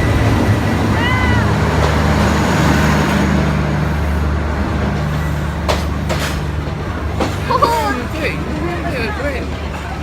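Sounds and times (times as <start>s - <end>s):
passenger train running: 0.0s - 10.0s.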